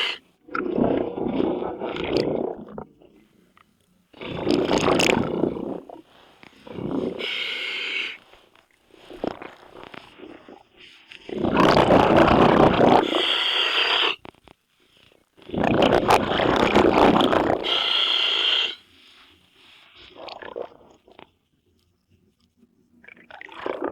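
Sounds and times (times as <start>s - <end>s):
exhaled bubbles rumbling underwater: 0.0s - 3.3s, 4.2s - 7.4s, 9.0s - 13.2s, 15.4s - 17.8s, 20.1s - 21.2s, 23.0s - 23.9s.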